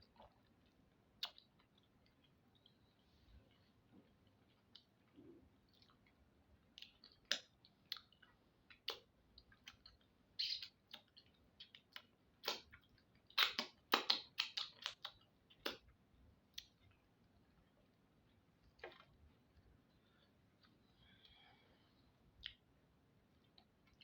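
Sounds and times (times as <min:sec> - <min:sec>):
wet mouth clicks and smacks: 0:01.2 - 0:02.7, 0:06.8 - 0:15.9.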